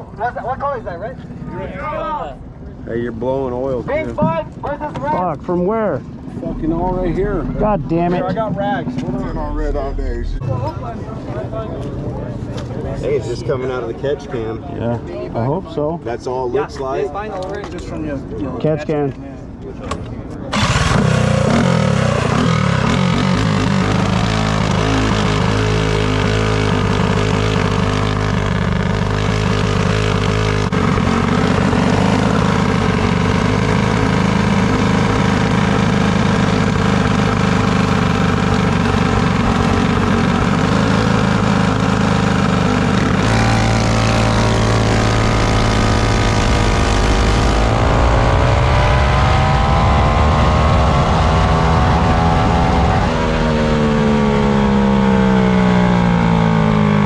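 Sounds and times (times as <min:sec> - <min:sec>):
minibike engines at high revs: 0:20.5 - 0:57.0.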